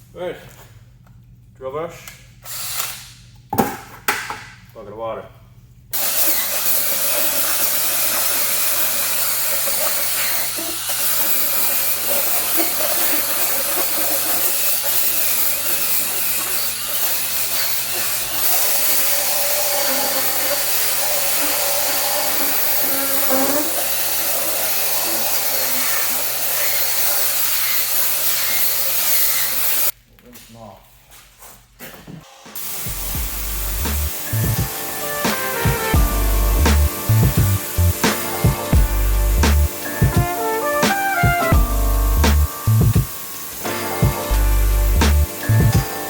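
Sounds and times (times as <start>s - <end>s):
power drill motor whir: 6.0s - 30.0s
bristles scrubbing wet mats: 6.7s - 28.5s.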